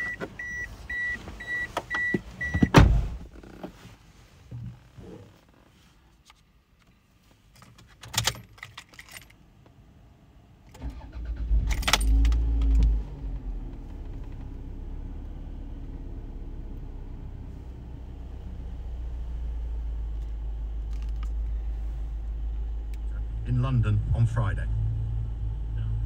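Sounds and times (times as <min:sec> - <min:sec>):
keys jangling and clicking: 0:07.6 - 0:09.4
car engine starting and idling: 0:10.6 - 0:26.0.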